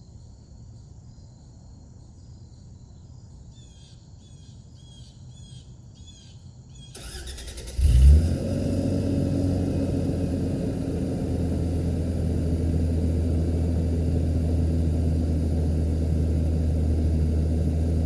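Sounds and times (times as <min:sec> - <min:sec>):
car engine idling: 0:07.0 - 0:18.0.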